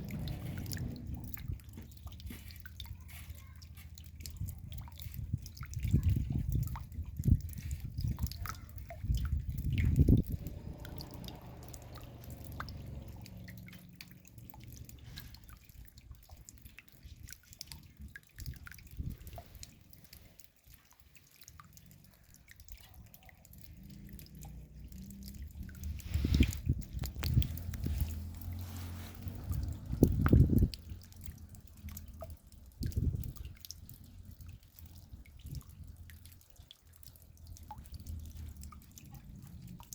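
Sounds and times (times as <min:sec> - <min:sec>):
low rumble: 0:00.0 - 0:01.8, 0:09.5 - 0:15.3, 0:24.2 - 0:31.6
raindrops dripping: 0:00.0 - 0:39.9.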